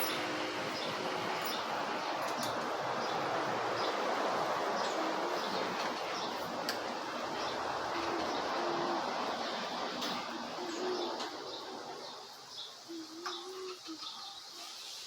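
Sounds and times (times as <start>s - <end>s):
birds chirping: 0.0s - 15.0s
background hiss: 6.2s - 15.0s.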